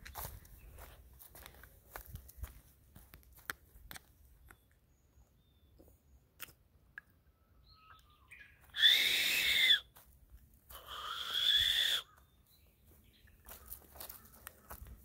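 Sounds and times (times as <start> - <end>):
footsteps on dry leaves: 0.0 - 3.4, 9.9 - 15.0
rasping bird call: 8.7 - 9.9, 10.8 - 12.2.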